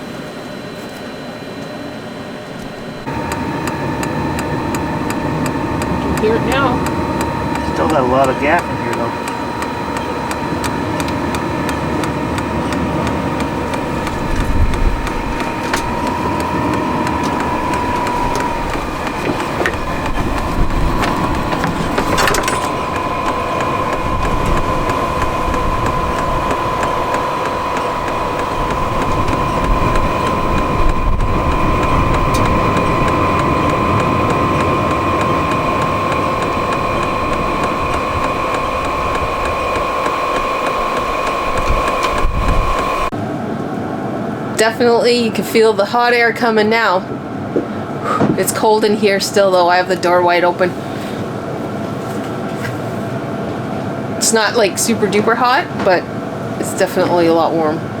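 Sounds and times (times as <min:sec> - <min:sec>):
heater blower whine: 0:00.0 - 0:58.0
air and combustion rush: 0:02.8 - 0:44.6.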